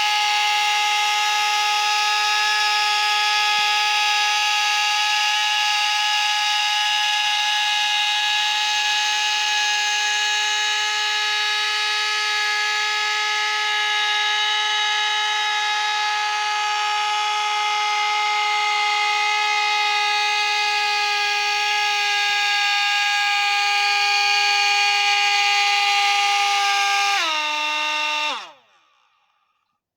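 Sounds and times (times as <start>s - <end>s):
toy aircraft motor whine: 0.0s - 29.6s.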